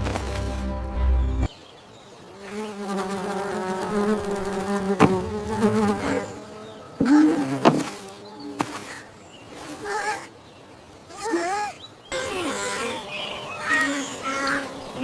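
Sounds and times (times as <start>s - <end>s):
music: 0.0s - 1.5s.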